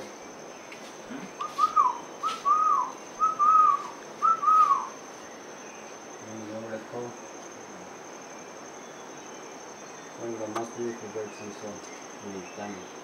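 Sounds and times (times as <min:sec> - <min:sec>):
bird whistled call: 0:01.4 - 0:05.0.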